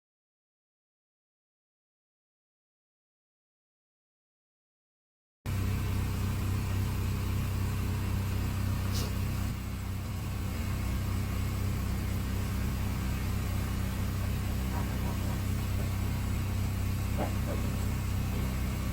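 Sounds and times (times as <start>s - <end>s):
engine running: 5.5s - 18.9s.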